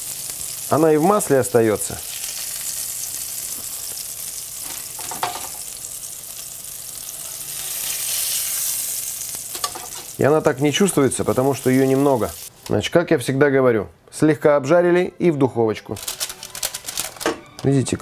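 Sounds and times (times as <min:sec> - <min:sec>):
fish sizzling in frying oil: 0:00.0 - 0:12.5
metal spatula turning food: 0:07.0 - 0:10.2.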